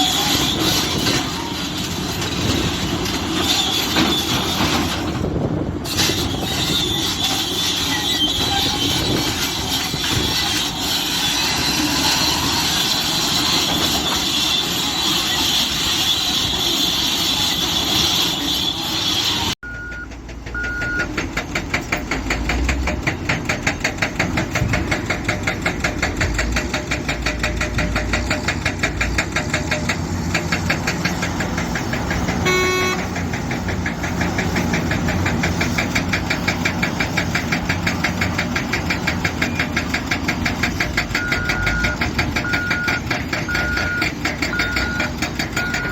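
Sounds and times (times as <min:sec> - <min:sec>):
heavy diesel machinery running: 0:00.0 - 0:45.9
short beeps: 0:19.6 - 0:21.1
brief horn-like tone: 0:32.4 - 0:33.0.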